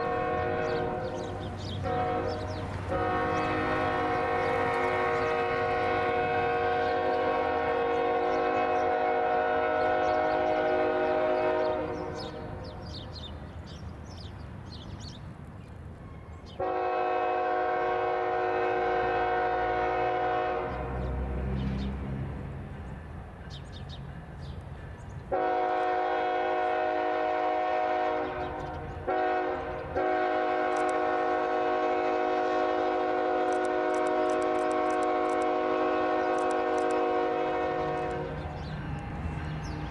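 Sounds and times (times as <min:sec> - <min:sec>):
locomotive air horn blasts: 0:00.0 - 0:12.7, 0:16.6 - 0:21.1, 0:25.3 - 0:39.9
train rumbling on track: 0:00.0 - 0:39.9.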